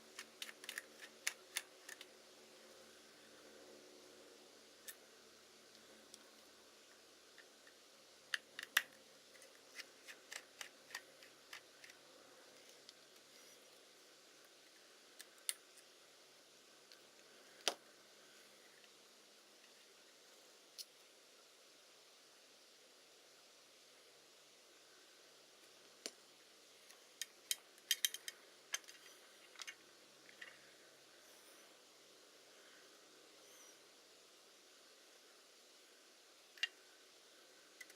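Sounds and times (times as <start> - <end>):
light clicks and taps of tools: 26.8 - 30.6.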